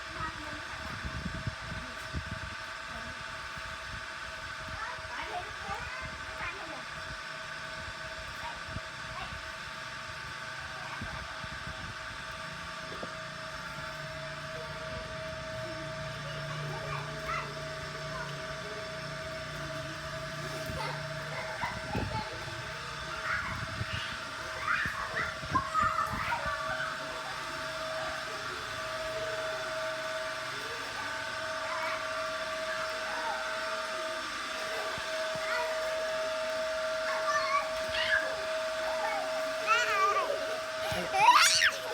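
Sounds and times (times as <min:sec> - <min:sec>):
machine humming: 0:10.2 - 0:41.9
toy train motor whirring: 0:37.0 - 0:41.9.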